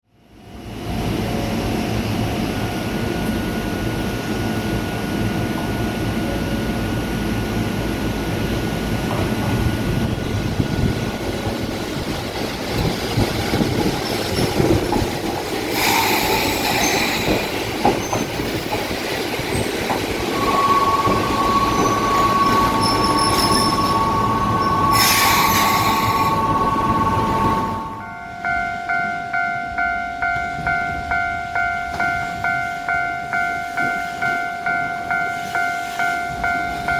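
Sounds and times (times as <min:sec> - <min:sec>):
train wheels rumbling on rails: 0:00.7 - 0:36.9
high-pitched wheel squeals: 0:20.3 - 0:28.2
level-crossing bell ringing: 0:20.3 - 0:36.9.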